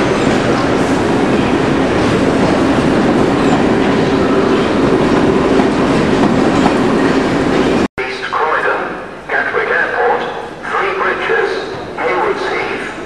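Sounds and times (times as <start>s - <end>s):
train wheels on rails: 0.0s - 7.9s.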